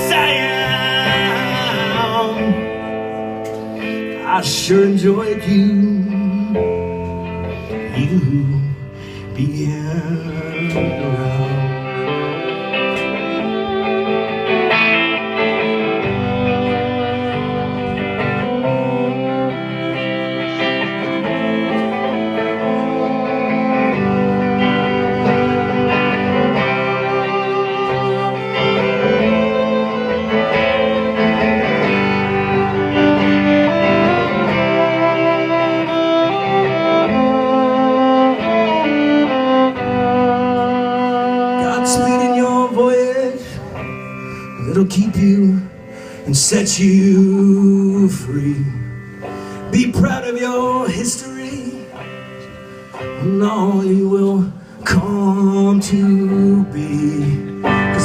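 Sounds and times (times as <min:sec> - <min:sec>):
melodic lead line with gliding notes: 0:00.0 - 0:46.0
strummed guitars: 0:00.0 - 0:58.0.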